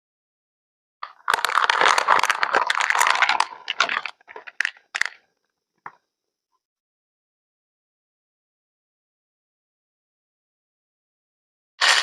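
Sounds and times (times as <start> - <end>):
crackling crinkling noise: 1.0 - 6.0.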